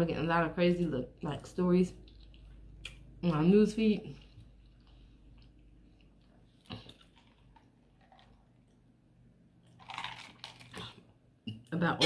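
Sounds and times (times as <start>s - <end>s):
person chewing: 2.0s - 3.2s, 4.1s - 8.9s, 9.6s - 11.1s.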